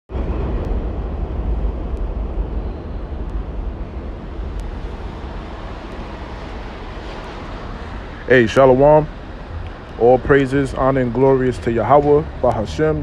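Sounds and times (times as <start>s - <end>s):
low rumbling noise: 0.1s - 13.0s.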